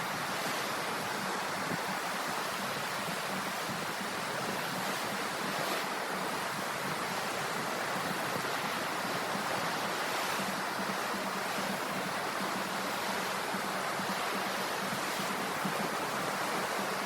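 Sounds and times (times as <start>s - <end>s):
ocean waves washing ashore: 0.0s - 17.0s.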